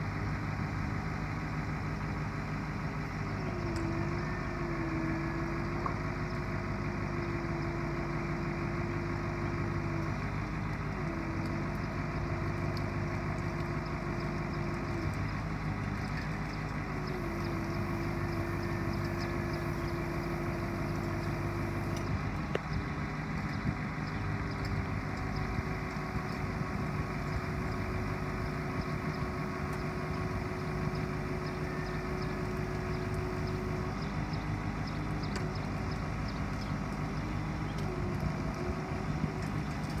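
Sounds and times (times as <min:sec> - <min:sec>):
truck engine idling: 0:00.0 - 0:40.0.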